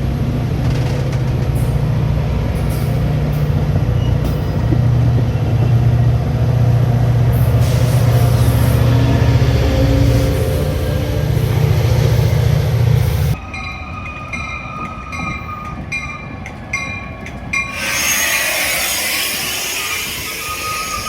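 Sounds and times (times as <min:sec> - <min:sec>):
low train rumble: 0:00.0 - 0:21.0
air hissing: 0:17.7 - 0:21.0.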